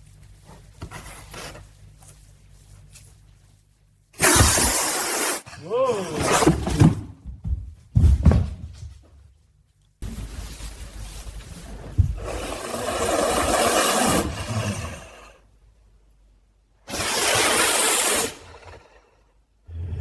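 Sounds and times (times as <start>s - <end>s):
wild cat hissing: 12.2s - 15.4s, 16.9s - 20.0s.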